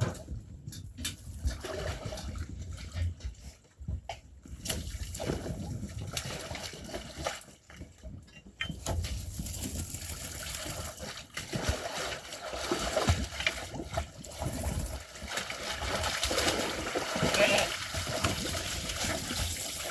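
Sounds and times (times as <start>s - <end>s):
water splashing and sloshing: 0.0s - 19.9s.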